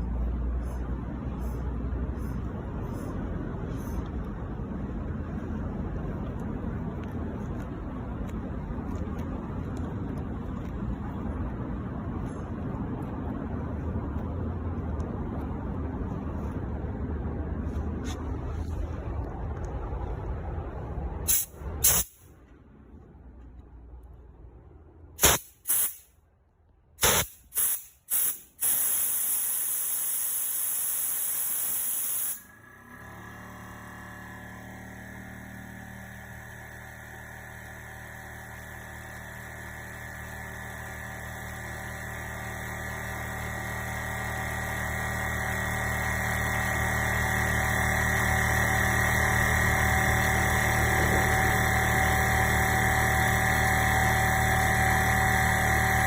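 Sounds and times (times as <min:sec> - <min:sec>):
air compressor motor running: 0:21.3 - 0:22.2, 0:25.2 - 0:26.1, 0:27.0 - 0:56.0
compressed air hissing: 0:21.3 - 0:22.3, 0:25.2 - 0:26.1, 0:27.0 - 0:32.5.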